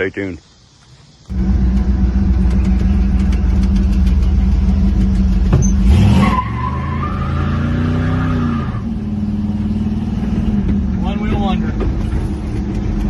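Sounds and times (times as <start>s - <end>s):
truck engine running: 1.3s - 7.9s, 8.8s - 13.0s.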